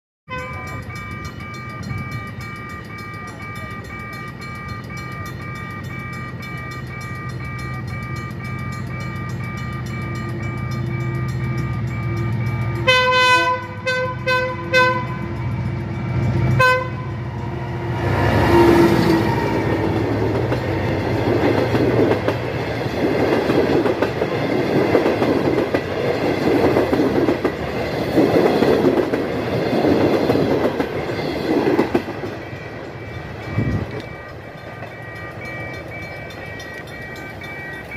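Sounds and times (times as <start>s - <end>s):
train horn blasts: 0.3s - 21.0s
train rumble: 0.3s - 37.9s
clattering train wheels: 0.4s - 37.9s.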